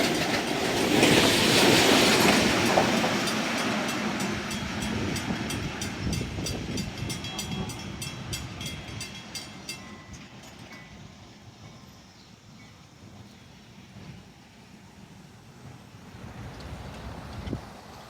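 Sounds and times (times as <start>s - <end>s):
train wheels clacking over rail joints: 0.0s - 12.0s
train rumble: 0.0s - 18.0s.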